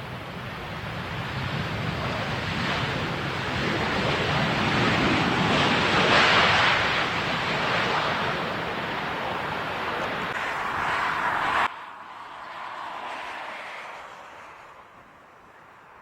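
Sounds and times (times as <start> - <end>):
wind buffeting microphone: 0.0 - 12.7
jet airliner roar overhead: 0.0 - 16.0.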